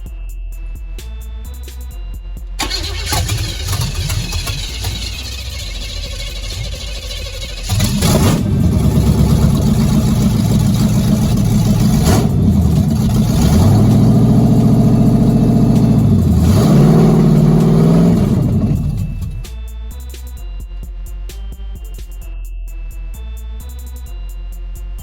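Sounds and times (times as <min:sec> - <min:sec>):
car engine revving: 0:02.6 - 0:19.5.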